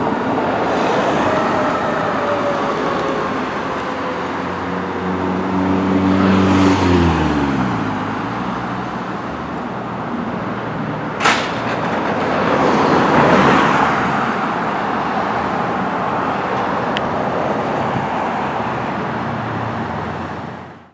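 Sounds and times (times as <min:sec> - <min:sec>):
heavy vehicle driving past: 0:00.0 - 0:07.0
traffic noise: 0:00.0 - 0:20.9.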